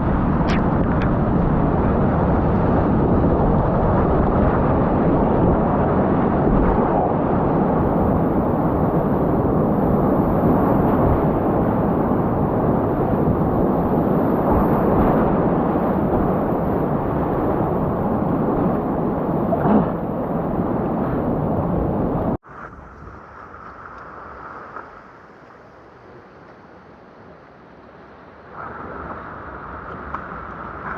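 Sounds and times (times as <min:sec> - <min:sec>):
water splash: 0:00.4 - 0:01.2.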